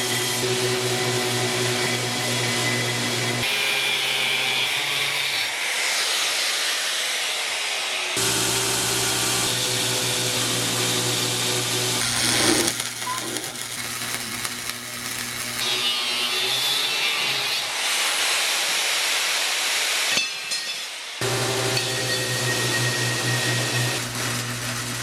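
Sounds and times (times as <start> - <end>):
grinding hiss: 0.0 - 25.0
power tool motor hum: 8.2 - 17.8, 21.2 - 25.0.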